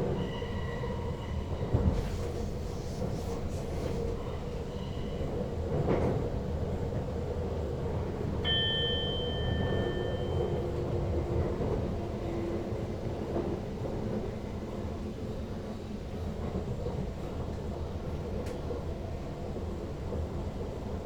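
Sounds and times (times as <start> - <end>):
train rumbling on rails: 0.0 - 21.0
high ringing tone: 8.5 - 11.0.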